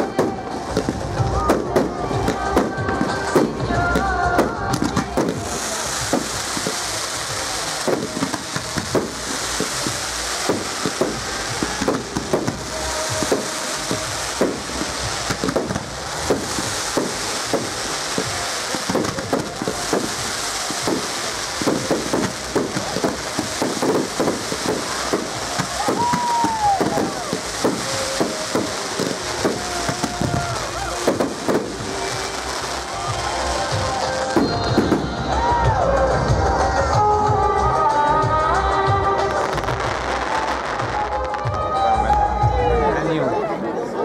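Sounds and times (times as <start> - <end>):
fireworks bangs and crackling: 0.0 - 42.8
steady hiss: 5.0 - 34.6
falling firework whistle: 5.2 - 35.7.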